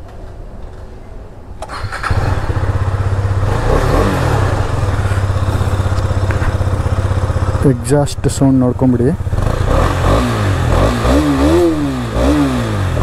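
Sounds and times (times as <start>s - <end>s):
motorcycle starter: 1.6s - 2.9s
motorcycle engine revving and idling: 1.7s - 13.0s.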